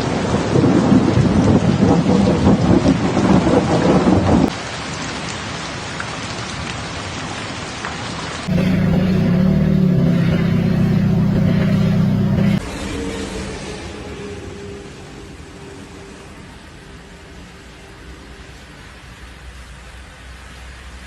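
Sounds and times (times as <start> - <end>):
heavy rain pouring: 0.0 - 21.0
low drone: 8.5 - 16.2.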